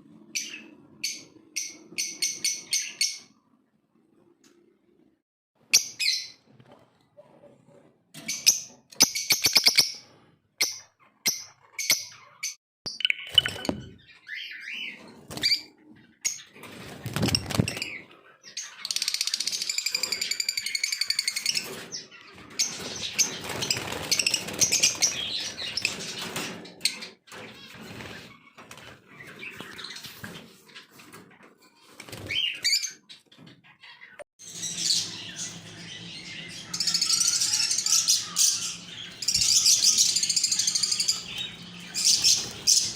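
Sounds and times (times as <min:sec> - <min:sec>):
lovebirds chirping and chattering: 0:07.6 - 0:30.9, 0:32.3 - 0:42.9.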